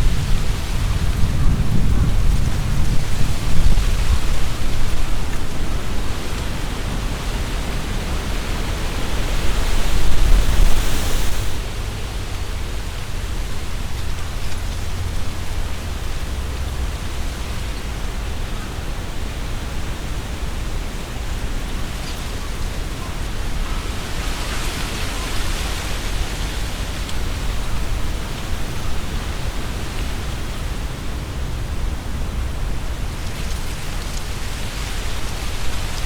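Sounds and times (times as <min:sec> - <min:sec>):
wind buffeting microphone: 0:00.0 - 0:18.3
leaves rustling in wind: 0:00.0 - 0:36.0.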